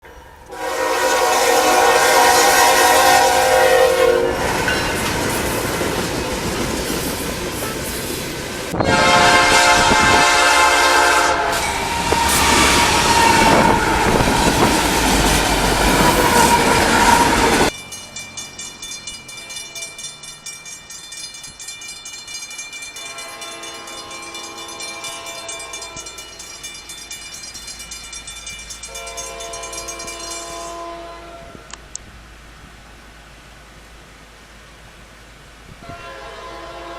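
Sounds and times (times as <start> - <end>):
faint train horn: 0.0 - 5.6, 8.7 - 17.7, 23.0 - 26.3, 28.9 - 31.7, 35.8 - 36.9
train horn blasts: 0.1 - 5.6, 8.7 - 17.7, 23.0 - 26.3, 28.9 - 31.7, 35.8 - 36.9
train wheels clattering: 4.4 - 8.8
level crossing bells ringing: 17.7 - 30.7.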